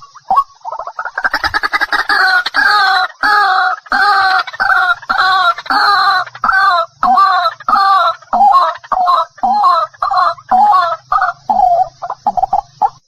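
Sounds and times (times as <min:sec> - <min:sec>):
waterhen harsh honking calls: 0:01.0 - 0:12.5.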